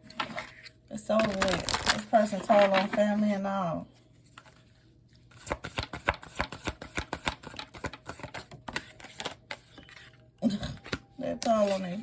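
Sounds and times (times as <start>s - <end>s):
cards being shuffled: 5.3s - 10.2s.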